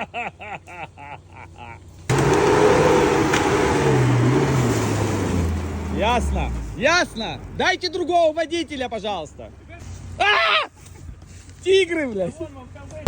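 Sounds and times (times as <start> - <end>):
vehicle engine revving hard: 2.1 - 6.6.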